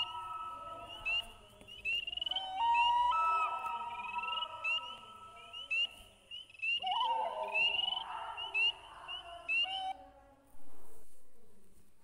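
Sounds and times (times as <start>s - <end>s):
birds chirping: 0.0s - 10.1s.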